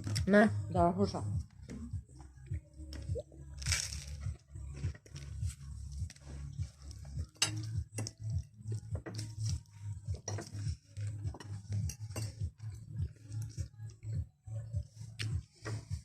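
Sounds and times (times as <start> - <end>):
cutlery clinking against dishes: 7.3 - 8.2, 11.4 - 12.4.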